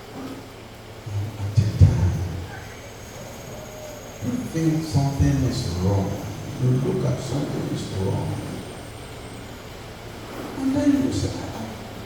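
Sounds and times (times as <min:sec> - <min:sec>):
faint background noise: 0:00.0 - 0:12.0
man speaking: 0:01.0 - 0:02.8, 0:04.2 - 0:08.8, 0:10.6 - 0:11.9.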